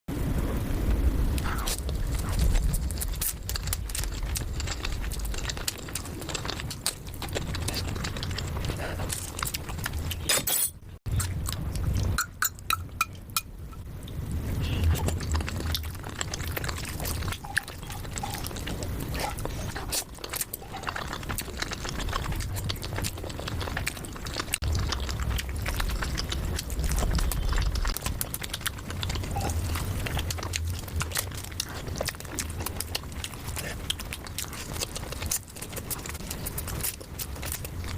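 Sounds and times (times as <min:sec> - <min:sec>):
low rumble: 0:00.1 - 0:10.1, 0:21.0 - 0:33.6
chewing and mouth sounds: 0:01.4 - 0:10.5, 0:11.1 - 0:37.9.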